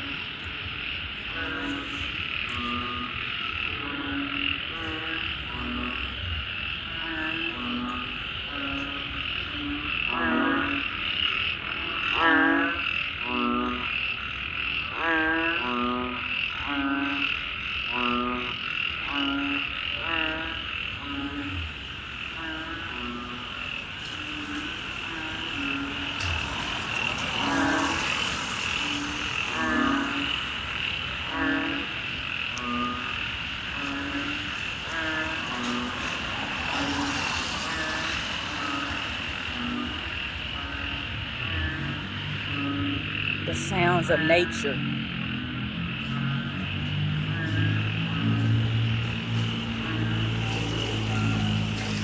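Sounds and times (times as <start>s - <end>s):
frogs croaking: 0.0s - 52.0s
pulsed rattling frog calls: 0.0s - 52.0s.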